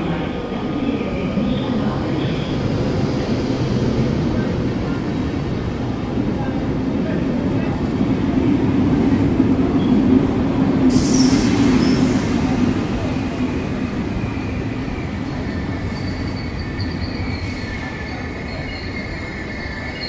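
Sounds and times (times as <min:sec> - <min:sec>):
train low rumble: 0:00.0 - 0:20.0
wheels squealing on rails: 0:10.9 - 0:20.0.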